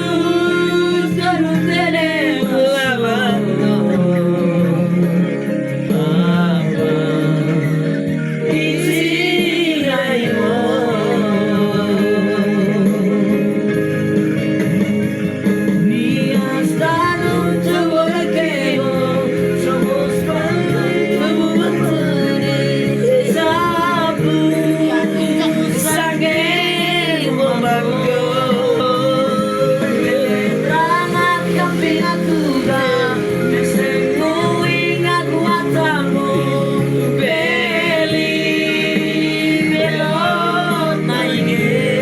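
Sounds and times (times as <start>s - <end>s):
child singing with vibrato: 0.0s - 4.0s, 15.8s - 42.0s
musical backing accompaniment: 0.0s - 42.0s.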